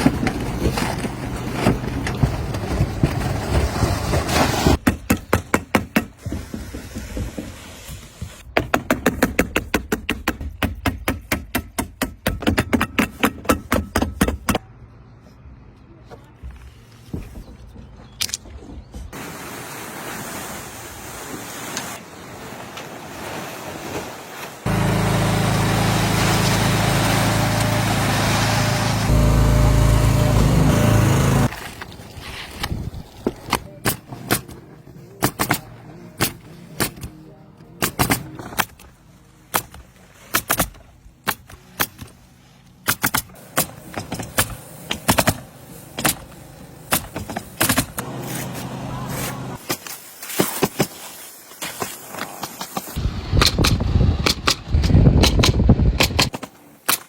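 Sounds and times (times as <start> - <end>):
machine hum: 24.7 - 31.9.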